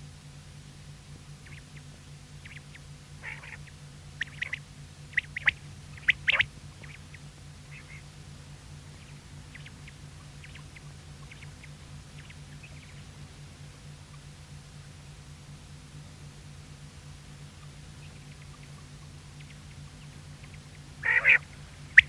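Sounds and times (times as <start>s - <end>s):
low hum: 0.0s - 22.0s
quail calling: 1.4s - 8.2s, 9.0s - 13.1s, 17.6s - 22.0s.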